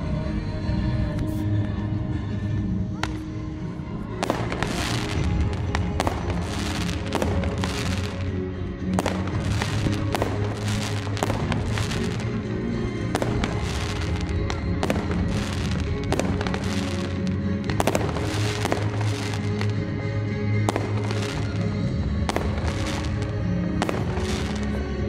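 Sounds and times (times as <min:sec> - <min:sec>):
music through sound system: 0:00.0 - 0:25.0
fireworks bangs and crackles: 0:04.0 - 0:25.0.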